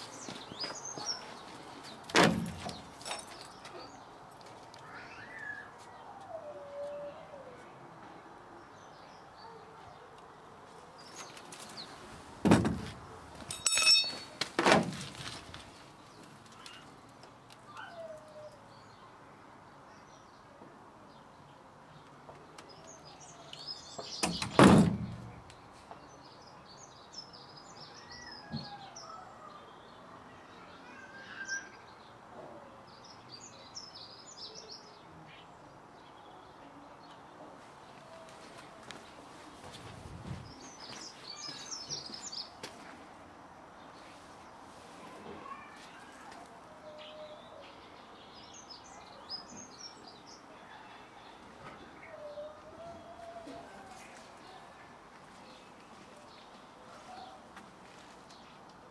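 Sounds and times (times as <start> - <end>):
loud thumps: 12.4 - 13.0.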